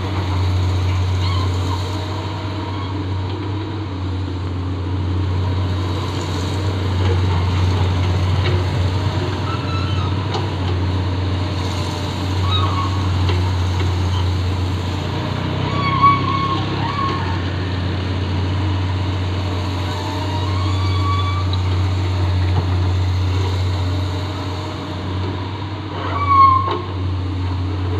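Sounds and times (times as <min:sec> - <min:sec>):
excavator diesel engine running: 0:00.0 - 0:27.9.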